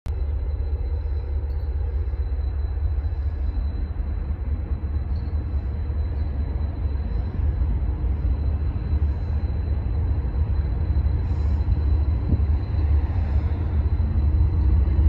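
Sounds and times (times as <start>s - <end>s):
distant train rumble: 0.1s - 15.0s.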